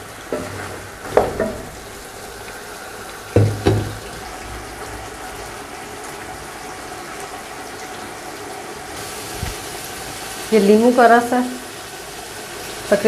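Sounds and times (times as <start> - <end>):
food sizzling in a pot: 0.0 - 4.3, 8.9 - 13.0
wooden spatula knocking on pot: 3.4 - 4.0.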